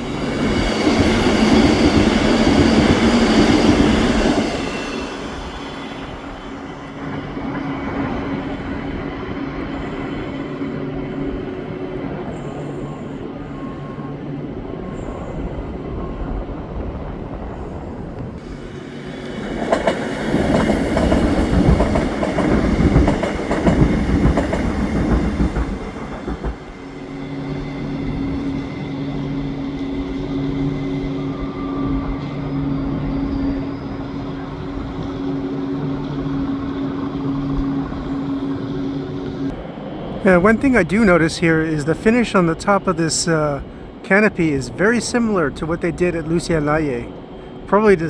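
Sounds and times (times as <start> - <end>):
train wheels clattering on rails: 0.0 - 13.0, 18.2 - 39.6.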